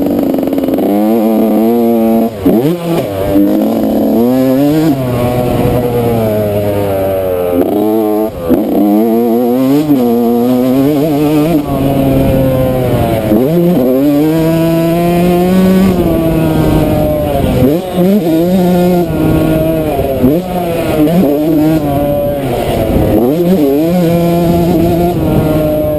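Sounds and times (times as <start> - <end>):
motocross engine revving: 0.0 - 25.9.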